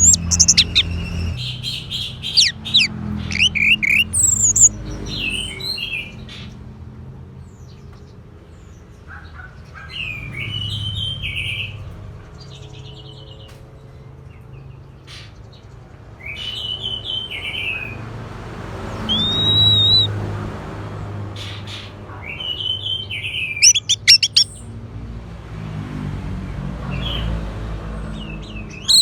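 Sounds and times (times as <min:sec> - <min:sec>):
bird singing whistled notes: 0:00.0 - 0:04.7, 0:19.1 - 0:20.1, 0:22.6 - 0:24.6.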